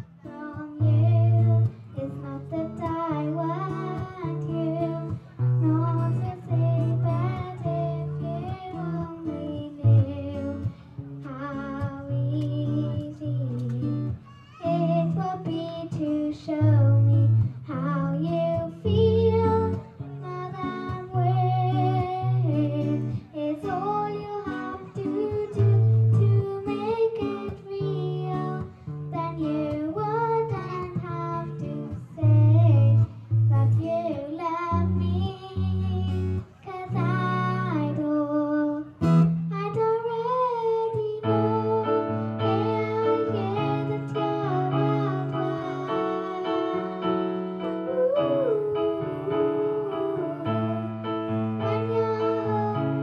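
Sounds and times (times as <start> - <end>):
person singing: 0.0 - 53.0
instrumental chords: 41.1 - 53.0.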